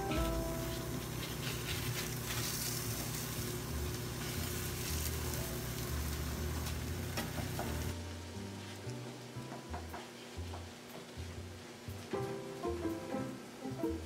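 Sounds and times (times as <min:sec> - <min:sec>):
food sizzling in a hot pan: 0:00.0 - 0:09.5.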